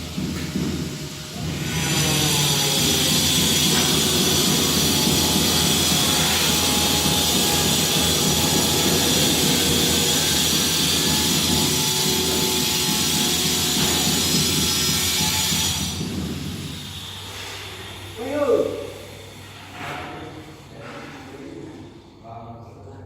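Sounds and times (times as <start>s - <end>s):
machine motor whining: 1.0s - 17.2s.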